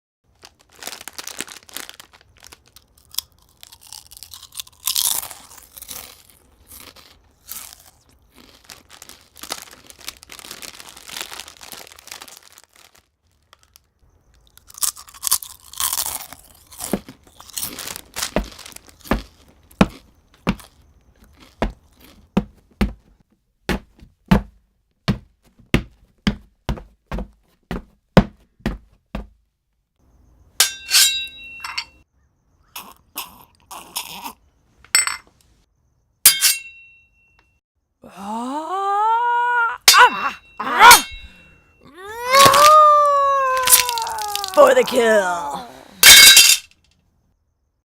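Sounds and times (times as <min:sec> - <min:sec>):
crunching and crackling: 0:00.2 - 0:23.3, 0:39.8 - 0:46.9.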